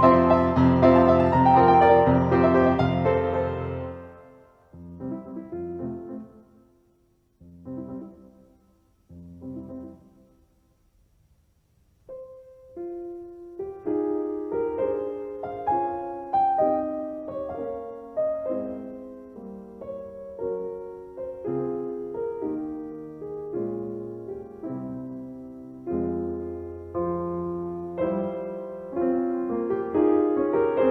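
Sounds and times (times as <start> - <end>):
gentle piano music: 0.0 - 10.5, 12.0 - 30.9.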